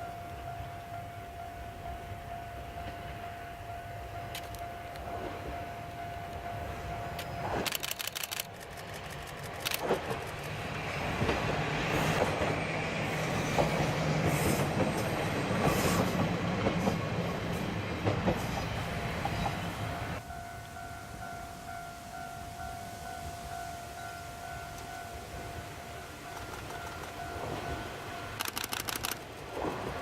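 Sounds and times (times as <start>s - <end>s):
diesel railcar engine: 0.0s - 30.0s
wheels clattering over rail joints: 7.1s - 10.6s.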